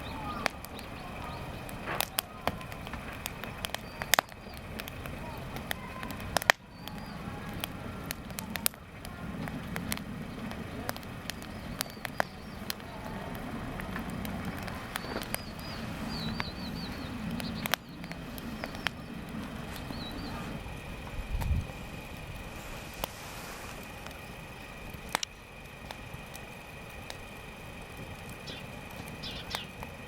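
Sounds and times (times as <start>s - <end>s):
bird chirping: 0.0s - 1.8s, 10.2s - 13.2s, 14.7s - 20.6s, 28.4s - 29.8s
campfire crackling and popping: 0.0s - 30.0s.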